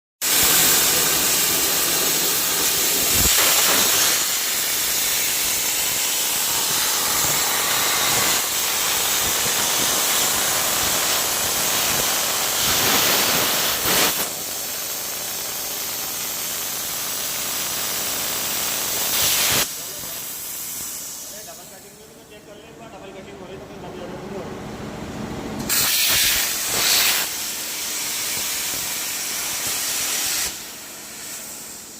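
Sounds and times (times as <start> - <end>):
plasma cutting torch hissing: 0.2 - 22.1, 25.7 - 31.9.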